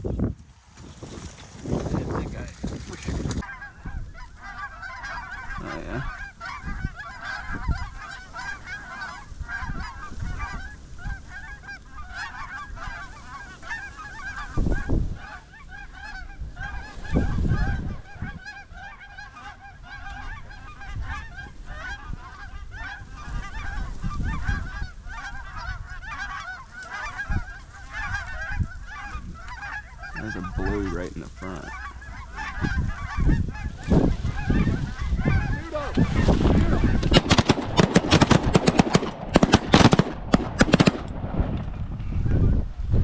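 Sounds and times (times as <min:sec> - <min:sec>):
flock of geese honking: 0:00.8 - 0:42.6.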